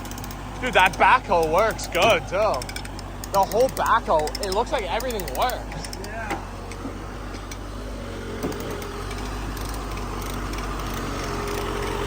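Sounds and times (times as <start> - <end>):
heavy engine running under load: 0.0 - 12.0.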